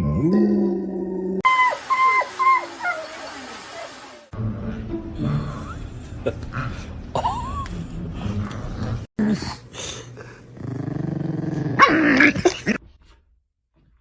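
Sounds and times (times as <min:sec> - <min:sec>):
dog growling: 0:05.2 - 0:12.8.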